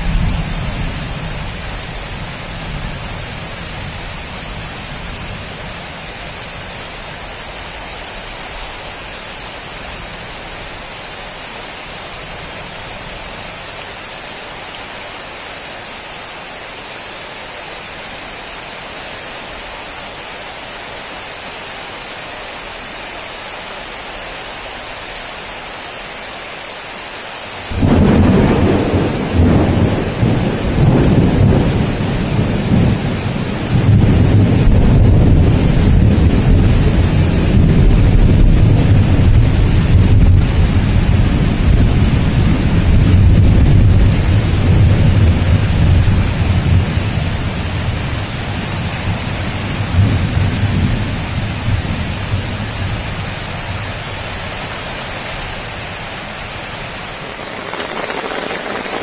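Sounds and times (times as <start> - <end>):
heavy rain on foliage: 0.0 - 59.0
deep rolling thunder: 27.7 - 40.4.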